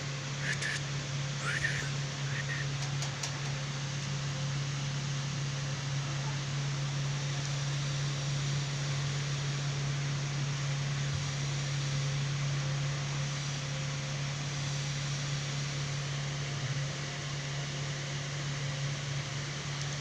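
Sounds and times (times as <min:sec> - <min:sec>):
low machine hum with hiss: 0:00.0 - 0:20.0.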